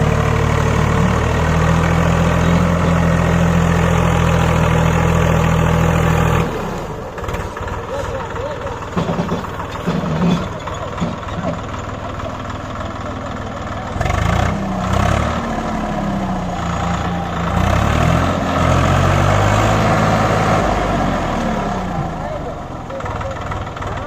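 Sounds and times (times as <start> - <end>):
tractor diesel engine revving: 0.0 - 24.0.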